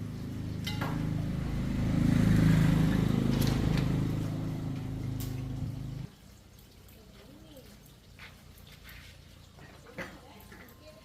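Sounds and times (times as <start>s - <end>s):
vehicle engine passing by: 0.0s - 6.2s.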